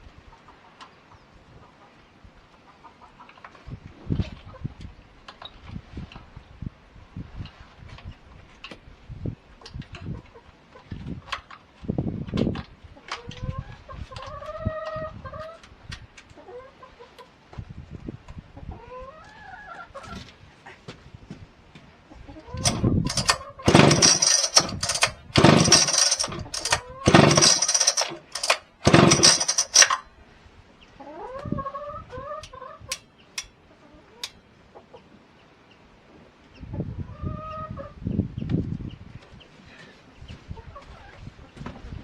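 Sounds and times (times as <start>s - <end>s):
loud harsh bursts: 22.6s - 30.0s.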